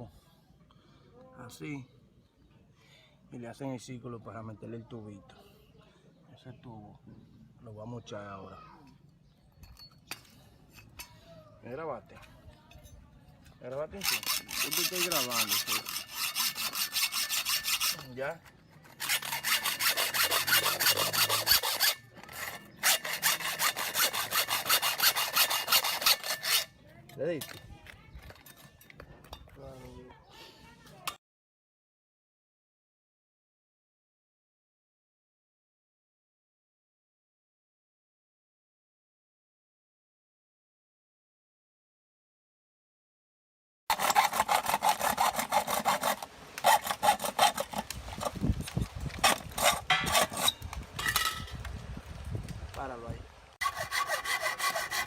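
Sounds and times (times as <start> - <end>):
hacksaw cutting metal: 13.9 - 28.9, 43.9 - 51.5, 53.6 - 55.0.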